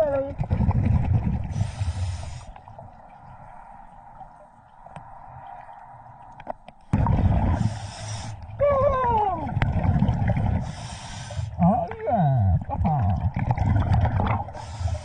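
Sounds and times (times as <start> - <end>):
exhaled bubbles rushing: 0.0 - 11.8, 12.4 - 14.8
regulator breathing underwater: 1.5 - 2.6, 7.3 - 8.5, 10.4 - 11.6, 14.5 - 15.0.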